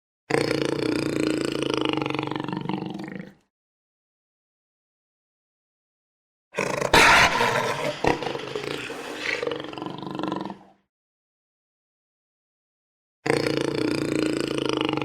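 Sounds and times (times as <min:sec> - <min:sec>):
jaguar roaring: 0:06.6 - 0:10.7.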